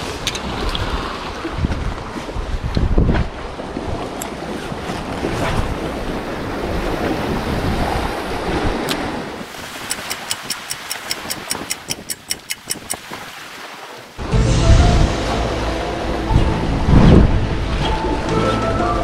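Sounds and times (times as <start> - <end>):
wind buffeting microphone: 0.0 - 13.3, 16.0 - 18.3
surf at the shore: 0.0 - 19.0
sharp clicks: 9.8 - 13.0.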